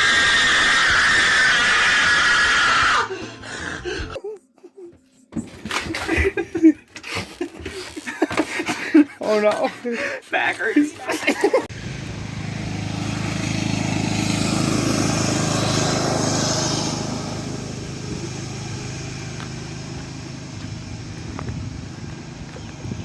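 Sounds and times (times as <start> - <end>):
small engine passing by: 11.7 - 23.0.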